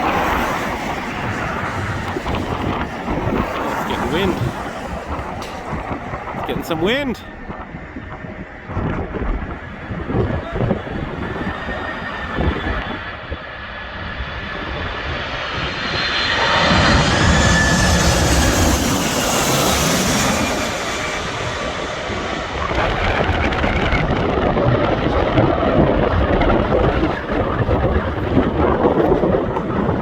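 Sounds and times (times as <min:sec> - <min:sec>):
gusty rumble: 0:00.0 - 0:30.0
jet engines whining: 0:00.0 - 0:30.0.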